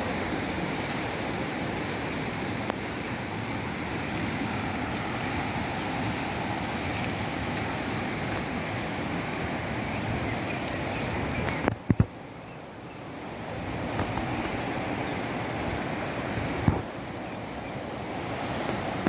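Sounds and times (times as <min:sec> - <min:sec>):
waterfall and stream rushing: 0:00.0 - 0:19.0.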